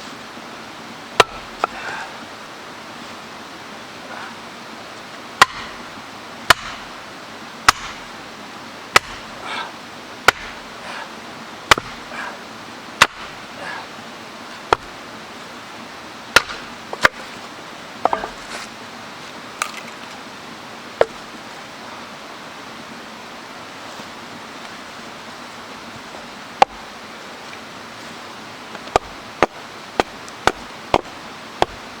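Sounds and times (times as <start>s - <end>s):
stream water rushing: 0.0s - 32.0s
wood chopping strikes: 1.2s - 1.8s, 5.4s - 5.9s, 6.5s - 6.9s, 7.7s - 8.1s, 8.9s - 9.4s, 10.2s - 10.6s, 11.7s - 12.1s, 13.0s - 13.4s, 14.7s - 14.9s, 16.3s - 17.2s, 28.9s - 31.8s.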